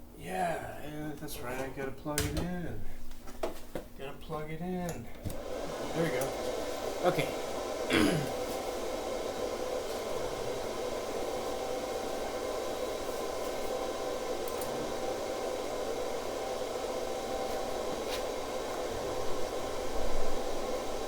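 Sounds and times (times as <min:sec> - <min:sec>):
welder cooling fan whirring: 0:00.0 - 0:21.0.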